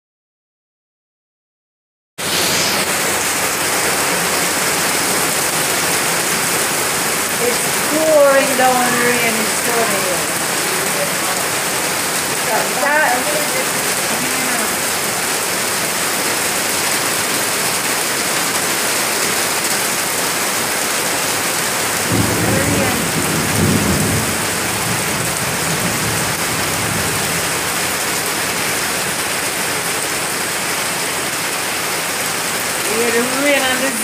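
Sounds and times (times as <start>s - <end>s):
rain pouring on pavement and plants: 2.2s - 34.0s.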